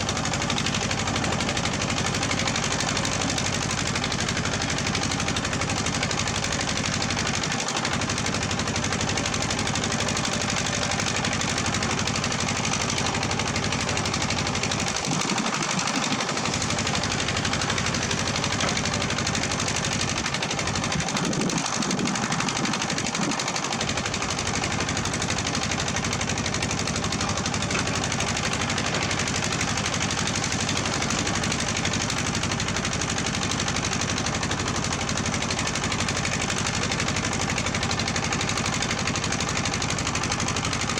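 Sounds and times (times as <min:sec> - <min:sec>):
diesel engine clattering: 0:00.0 - 0:40.9.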